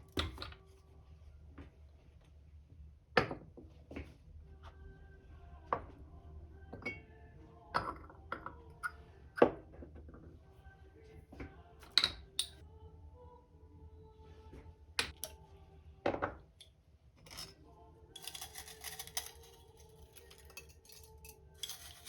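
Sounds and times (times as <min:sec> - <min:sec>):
tableware clinks and taps: 0:07.8 - 0:09.6, 0:18.2 - 0:22.0.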